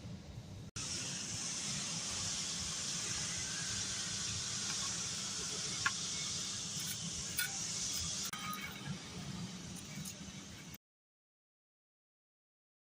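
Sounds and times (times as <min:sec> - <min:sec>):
steady high hiss: 0:00.0 - 0:10.8.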